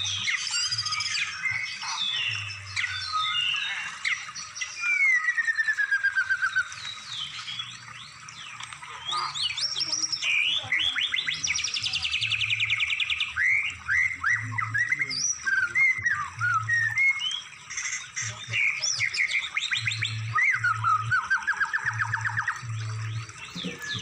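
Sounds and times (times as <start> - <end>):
songbird singing: 0.0 - 24.0.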